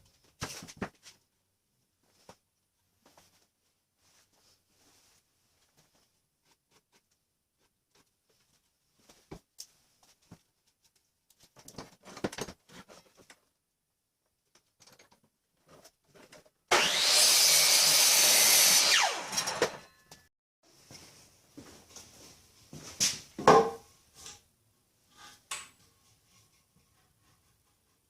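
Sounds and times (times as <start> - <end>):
power saw cutting wood: 16.7 - 20.0
saw blade winding down whine: 16.7 - 20.0.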